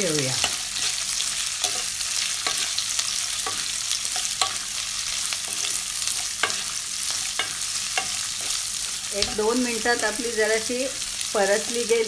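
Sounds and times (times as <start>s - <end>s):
vegetables sizzling in hot oil: 0.0s - 12.0s
spatula scraping and knocking pan: 0.4s - 9.8s.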